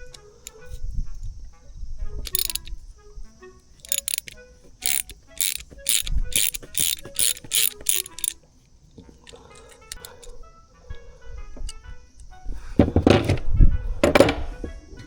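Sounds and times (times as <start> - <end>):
hand tool rasping on metal: 3.8 - 8.4.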